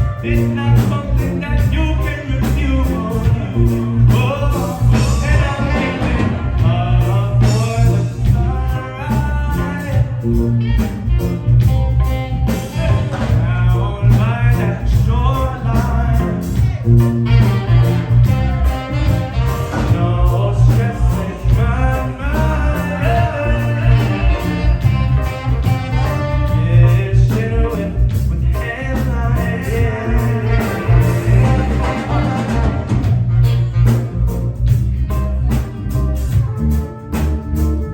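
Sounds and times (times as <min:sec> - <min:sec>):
bass line: 0:00.0 - 0:37.9
drums: 0:00.0 - 0:37.9
guitar: 0:00.0 - 0:37.9
horn section: 0:00.0 - 0:37.9.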